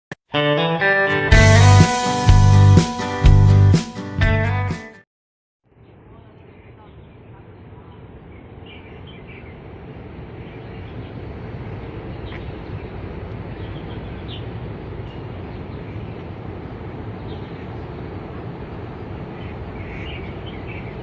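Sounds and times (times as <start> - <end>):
small birds chirping: 5.8 - 21.0
steady low rumble: 5.8 - 21.0.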